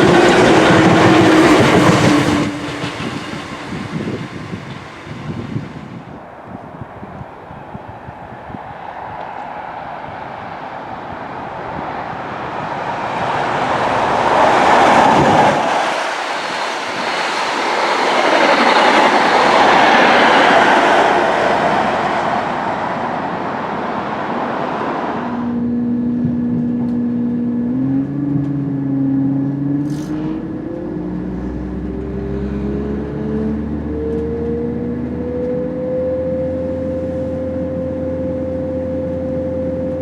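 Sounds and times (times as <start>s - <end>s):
engine hum: 0.0s - 6.2s, 11.0s - 40.0s
train passing at speed: 0.0s - 40.0s.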